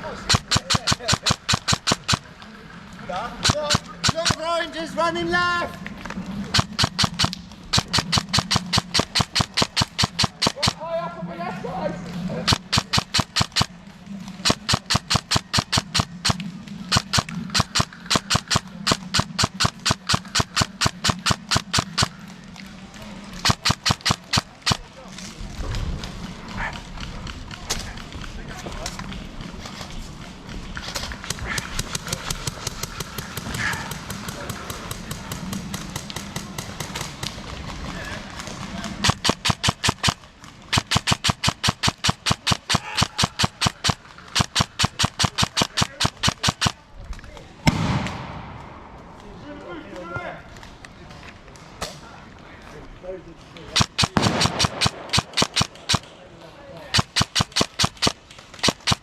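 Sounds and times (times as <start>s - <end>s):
airsoft gun shots: 0.2s - 2.3s, 3.4s - 4.5s, 6.5s - 10.8s, 12.5s - 13.7s, 14.4s - 22.2s, 23.4s - 24.8s, 39.0s - 46.8s, 47.6s - 48.8s, 53.7s - 56.1s, 56.9s - 59.0s.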